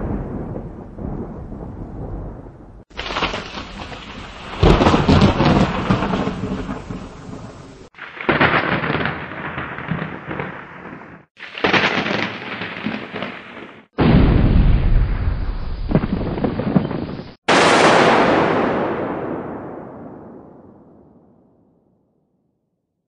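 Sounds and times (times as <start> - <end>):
thunder cracks and rumbling: 0.0 - 21.5.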